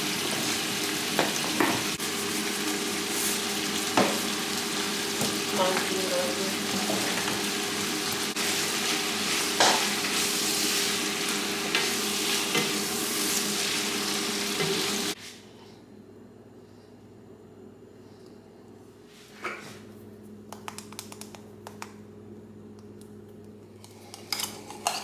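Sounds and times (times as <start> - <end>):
food sizzling in a frying pan: 0.0 - 15.2.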